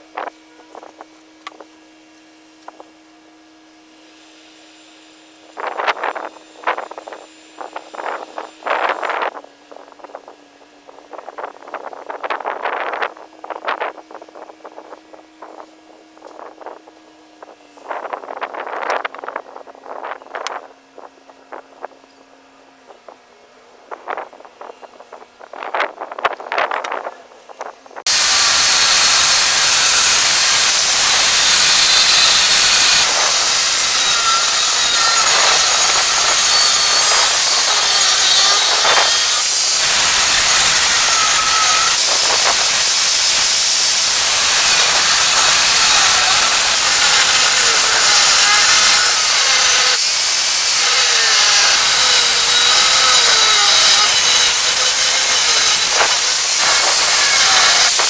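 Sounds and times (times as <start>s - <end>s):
power grinder grinding steel: 28.1s - 58.0s.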